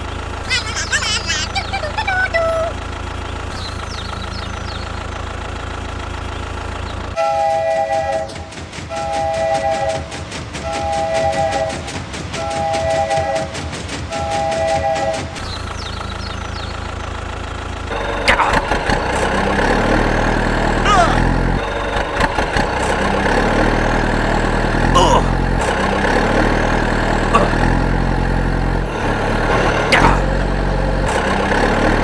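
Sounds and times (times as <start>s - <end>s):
engine idling: 2.7s - 7.2s, 15.4s - 31.2s.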